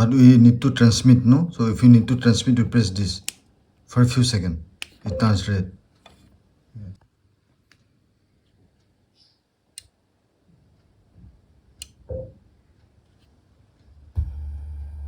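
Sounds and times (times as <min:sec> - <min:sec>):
faint sharp plastic clicks: 0:03.2 - 0:03.6, 0:04.8 - 0:05.1, 0:07.0 - 0:10.1, 0:10.7 - 0:12.1.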